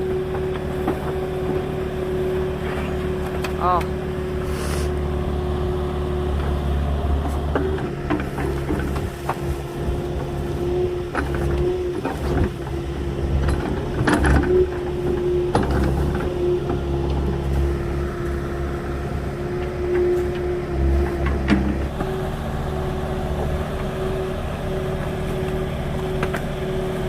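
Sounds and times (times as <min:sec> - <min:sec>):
excavator engine running: 0:00.0 - 0:27.0
clanks and knocks: 0:11.0 - 0:17.5, 0:19.5 - 0:22.1.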